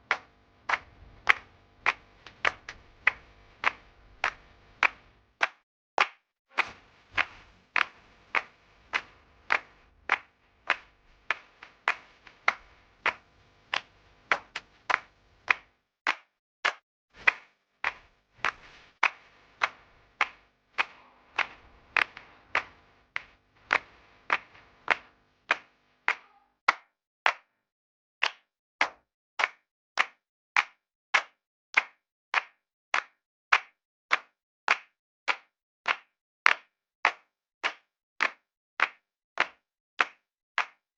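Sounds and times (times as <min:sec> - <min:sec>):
sharp slap-like percussive hits: 0:00.0 - 0:26.5.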